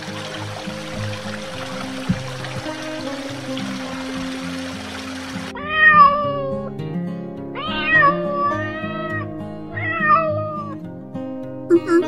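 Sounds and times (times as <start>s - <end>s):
running water hiss: 0.0s - 5.6s
background music: 0.0s - 12.0s
cat meowing: 5.6s - 6.7s, 7.6s - 10.8s.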